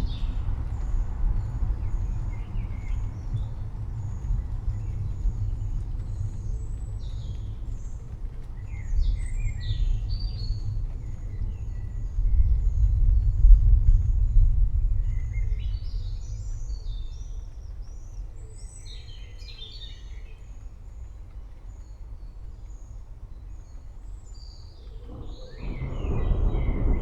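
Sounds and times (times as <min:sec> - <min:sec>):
thunder rumbling: 0:00.0 - 0:17.5, 0:24.8 - 0:27.0
birds chirping: 0:24.4 - 0:27.0.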